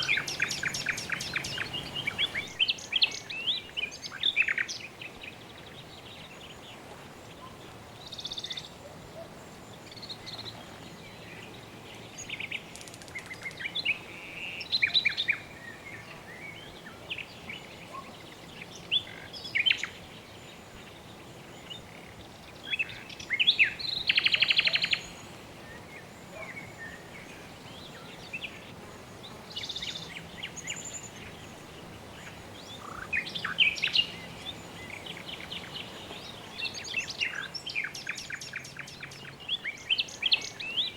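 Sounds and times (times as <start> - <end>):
bird rapid trill: 0.0 - 2.9
birds chirping: 0.0 - 40.9.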